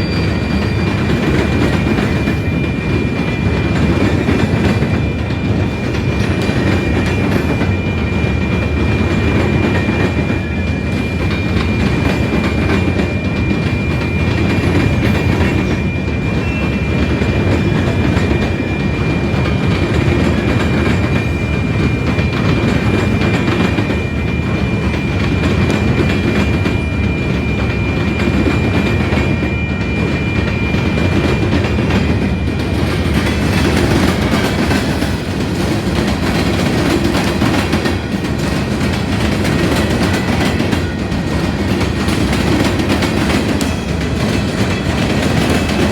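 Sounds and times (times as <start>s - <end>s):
train rumbling past: 0.0s - 45.9s
wheels clacking over rail joints: 30.9s - 45.9s.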